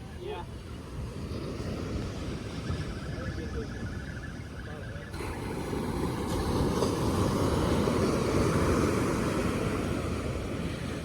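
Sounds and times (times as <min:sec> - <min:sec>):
wind: 0:00.0 - 0:11.0
surf roaring: 0:05.2 - 0:11.0.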